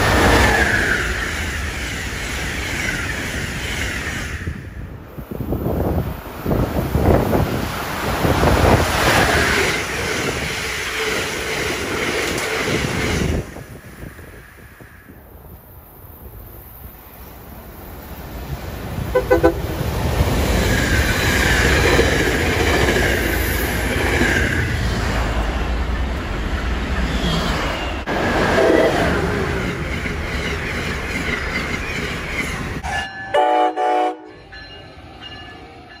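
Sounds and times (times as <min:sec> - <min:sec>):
train rumbling past: 0:00.0 - 0:36.0
train horn blasts: 0:19.1 - 0:19.8, 0:32.8 - 0:34.5.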